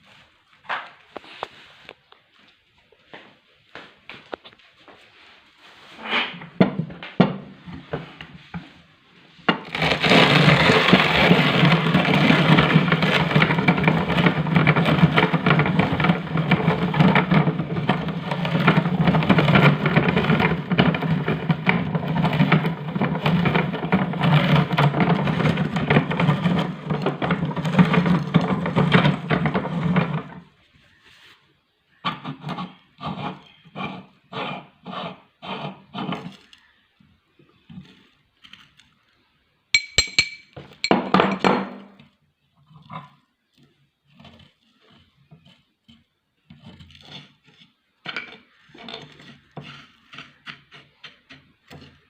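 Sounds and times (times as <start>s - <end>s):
electric meat grinder running: 9.7s - 27.0s.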